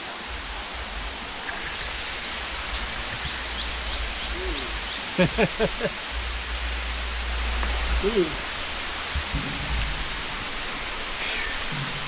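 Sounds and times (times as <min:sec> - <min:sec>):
waterfall rushing: 0:00.0 - 0:12.0
wind on microphone: 0:00.0 - 0:12.0
short falling vocal calls: 0:02.7 - 0:06.4.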